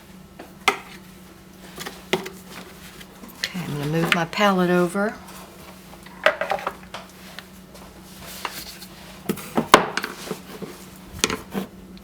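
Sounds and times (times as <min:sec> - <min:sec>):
faint steady hum: 0:00.0 - 0:12.0
painting supplies clattering on table: 0:06.1 - 0:07.0.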